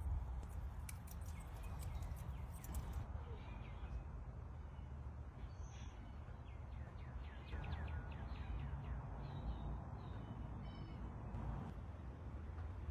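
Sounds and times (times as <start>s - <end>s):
small bird chirping: 0.4s - 3.0s.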